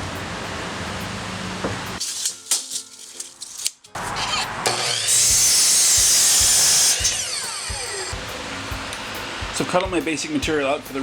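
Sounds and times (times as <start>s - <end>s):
saw blade cutting wood: 2.0s - 8.3s
power saw motor whine: 4.0s - 9.6s.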